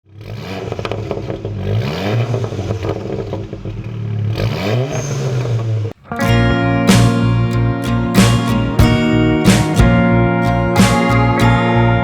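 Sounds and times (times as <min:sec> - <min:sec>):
car engine revving: 0:00.1 - 0:12.0.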